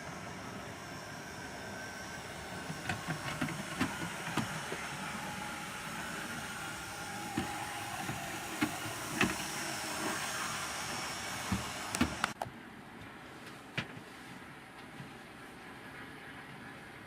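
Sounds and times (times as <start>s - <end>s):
model train motor whir: 0.0s - 12.4s
wheels clicking on rails: 0.0s - 12.4s.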